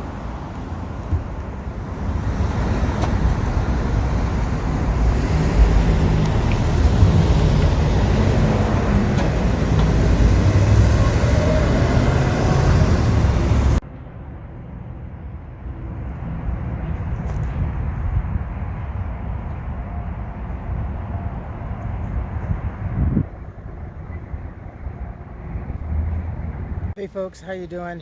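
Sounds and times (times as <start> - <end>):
bus passing close by: 0.0 - 27.0.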